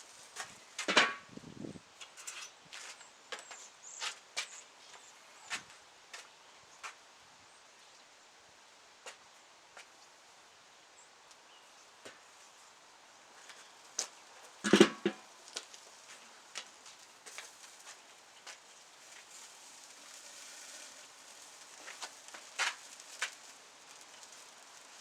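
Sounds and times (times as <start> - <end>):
campfire crackling and popping: 13.4 - 25.0.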